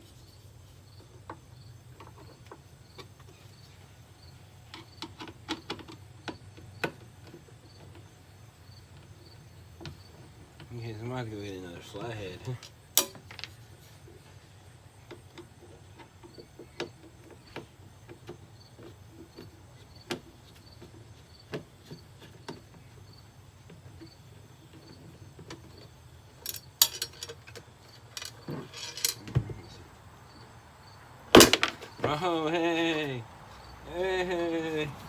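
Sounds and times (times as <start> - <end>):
crickets chirping: 0.0 - 35.0
rattling clicks: 12.4 - 13.6, 25.5 - 29.2
objects being handled: 12.4 - 14.4, 23.6 - 29.7, 31.4 - 32.3.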